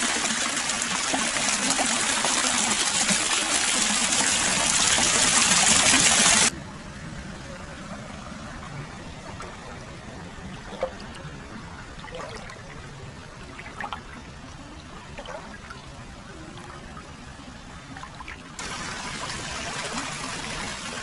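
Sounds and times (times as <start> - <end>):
water flowing into a bath: 0.0 - 6.5, 18.6 - 21.0
water splashes and drips: 0.0 - 6.6, 10.4 - 12.8, 13.4 - 17.2, 17.9 - 21.0.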